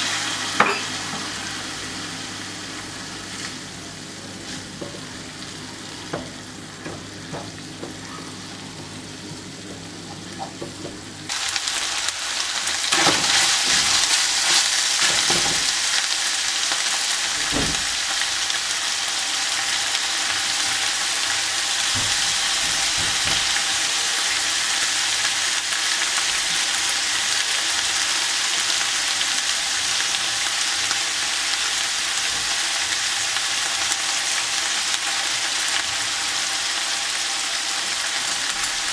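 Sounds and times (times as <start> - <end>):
food sizzling in hot oil: 0.0 - 38.9.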